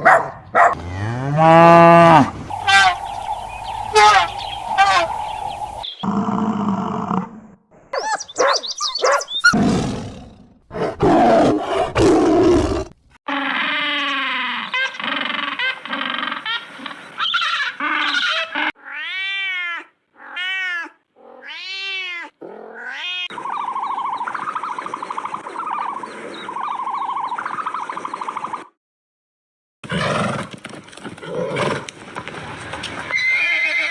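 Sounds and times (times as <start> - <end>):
animal calls: 0.6 - 6.1, 13.4 - 28.6.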